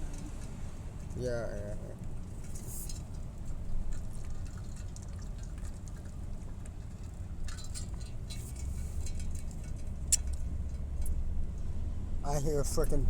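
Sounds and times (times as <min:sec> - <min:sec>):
low vehicle rumble: 0:00.0 - 0:13.0.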